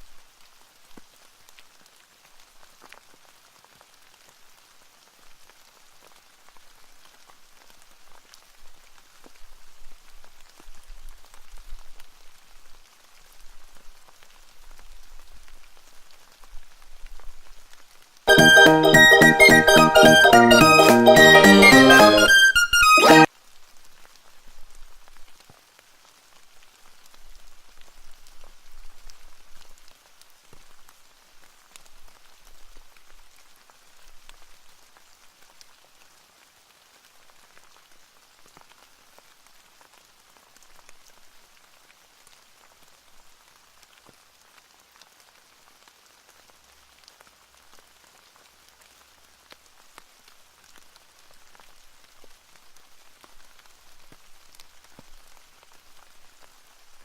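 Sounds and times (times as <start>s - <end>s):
steady rain patter: 0.0s - 57.0s.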